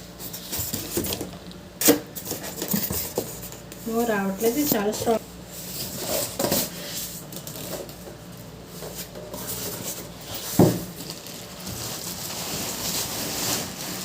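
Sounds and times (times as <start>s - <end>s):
packaging rustling and scraping: 4.7s - 8.1s, 8.7s - 14.0s.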